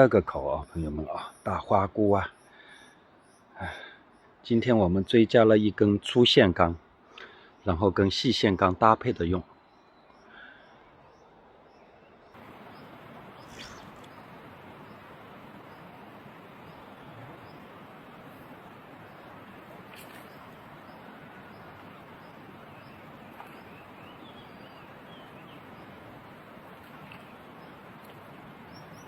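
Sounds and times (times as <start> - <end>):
small birds chirping: 6.5 - 29.0
stream water rushing: 12.4 - 29.0.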